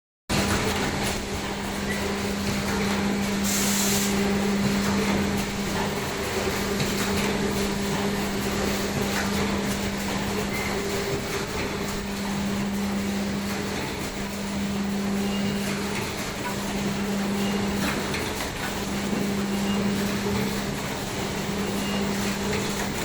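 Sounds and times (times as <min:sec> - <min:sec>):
air hiss: 0:03.4 - 0:04.2.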